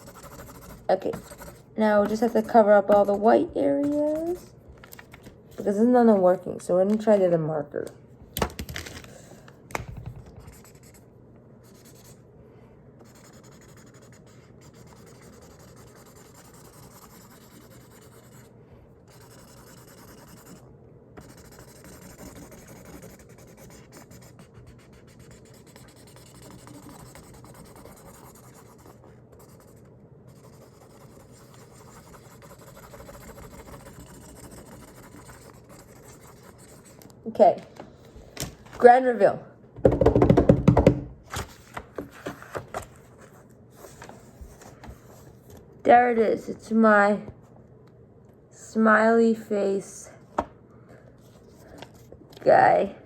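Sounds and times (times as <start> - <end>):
marker scribbling on paper: 0.0 - 4.5, 10.4 - 11.0, 11.6 - 12.2, 13.0 - 18.5, 19.1 - 20.6, 21.2 - 37.0.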